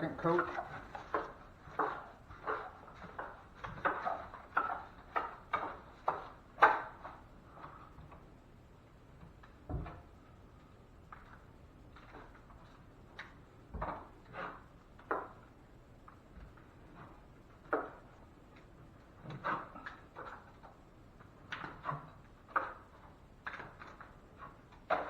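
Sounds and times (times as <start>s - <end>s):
drywall knife scraping: 0.3s - 7.2s.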